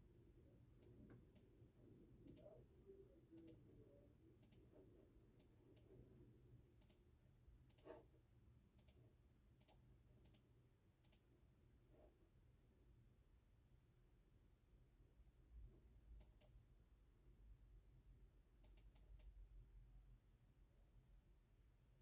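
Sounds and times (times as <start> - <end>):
soft irregular clicks: 0.7 - 12.1, 15.6 - 16.8, 18.5 - 19.8.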